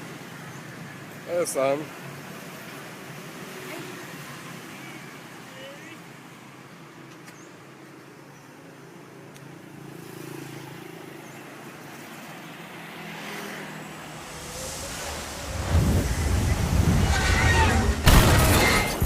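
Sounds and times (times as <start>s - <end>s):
car engines passing: 8.7s - 19.0s.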